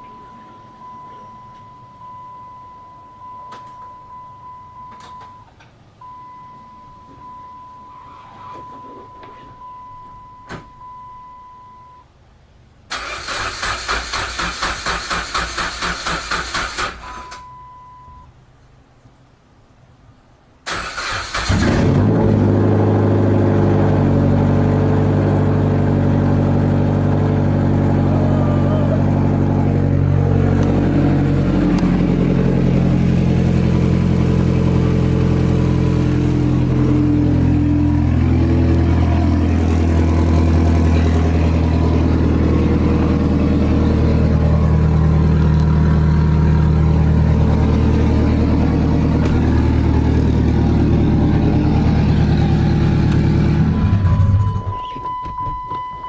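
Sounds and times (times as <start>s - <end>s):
car engine starting and idling: 12.8s - 18.2s, 20.6s - 56.0s.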